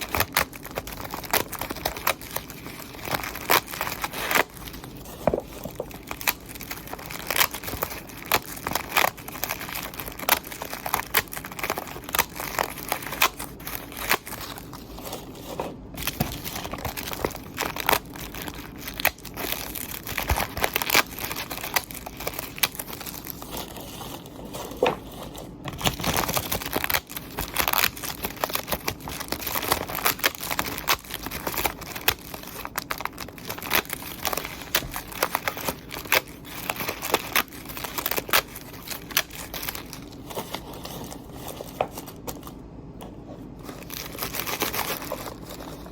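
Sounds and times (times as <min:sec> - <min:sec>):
material crinkling and crackling: 0:00.0 - 0:45.9.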